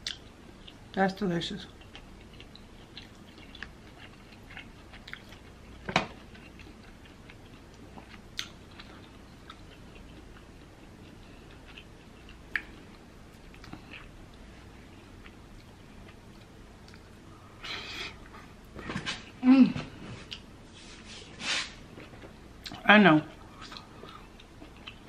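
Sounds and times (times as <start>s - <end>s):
close chewing and wet mouth sounds: 0.0s - 17.4s, 22.0s - 25.0s.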